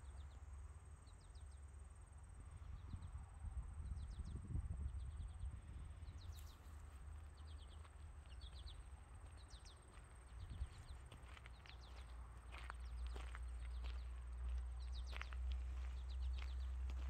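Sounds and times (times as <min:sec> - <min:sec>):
small birds chirping: 0:03.8 - 0:17.0.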